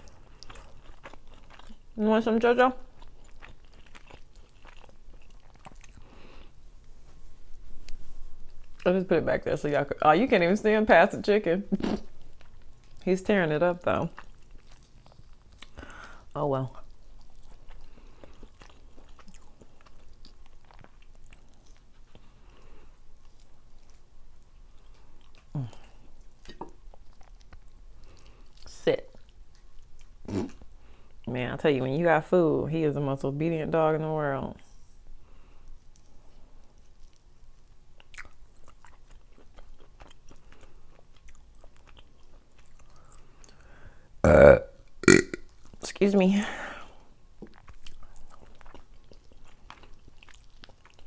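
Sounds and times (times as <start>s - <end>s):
wet chewing mouth sounds: 0.0s - 2.0s, 2.8s - 8.9s, 13.8s - 31.2s, 35.6s - 43.7s, 45.0s - 45.8s, 47.3s - 51.0s
loud burp: 44.2s - 45.4s
mouth clicks and smacks: 45.0s - 45.8s.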